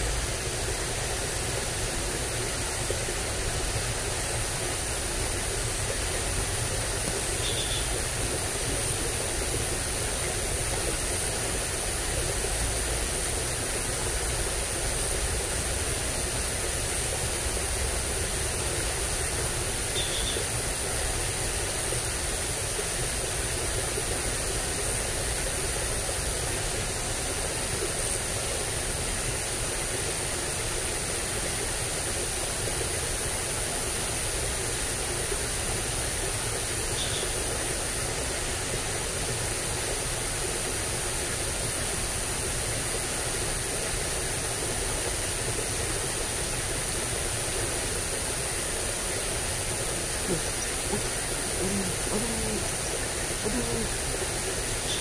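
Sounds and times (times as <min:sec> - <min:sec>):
water rushing in a ditch: 0:00.0 - 0:55.0
faint short chirps: 0:07.4 - 0:07.9, 0:20.0 - 0:20.4, 0:37.0 - 0:37.3.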